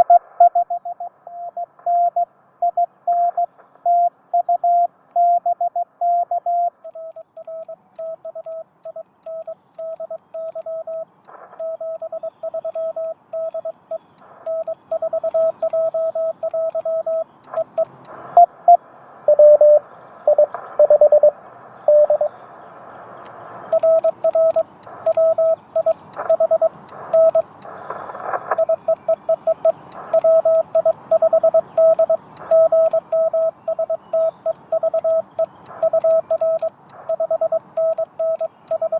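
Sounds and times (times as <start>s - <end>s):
morse code tones: 6.2s - 18.5s, 23.7s - 27.8s, 28.5s - 38.9s
faint clicks: 6.8s - 18.3s, 23.2s - 38.9s
receiver hiss: 6.8s - 22.3s, 22.9s - 38.9s
lower-pitched keyed tone: 11.6s - 17.9s, 28.6s - 38.9s.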